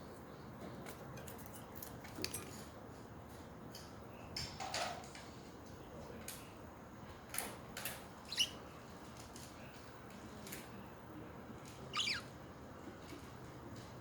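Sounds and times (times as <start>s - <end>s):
budgerigars chirping and chattering: 8.3s - 8.6s, 11.9s - 12.3s.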